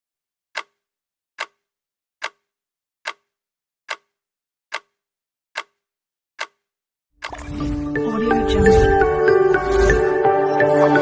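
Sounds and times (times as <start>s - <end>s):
clock-like ticking: 0.5s - 0.8s, 1.4s - 5.0s, 5.6s - 5.8s, 6.4s - 10.1s.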